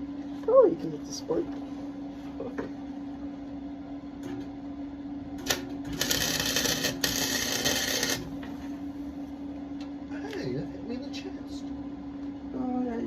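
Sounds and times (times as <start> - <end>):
steady hum: 0.0 - 13.0
arc welding sizzling crackle: 5.4 - 8.5.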